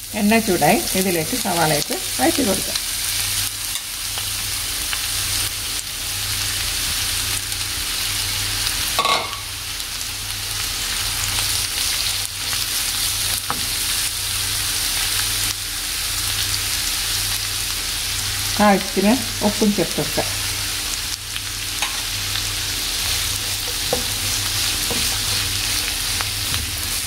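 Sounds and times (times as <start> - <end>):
onions sizzling in hot oil: 0.0 - 27.0.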